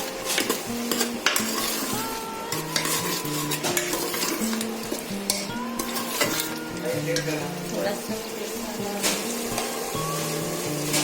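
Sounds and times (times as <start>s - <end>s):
spoon scraping a cooking pot: 0.0s - 7.6s
frying sizzle: 0.0s - 11.0s.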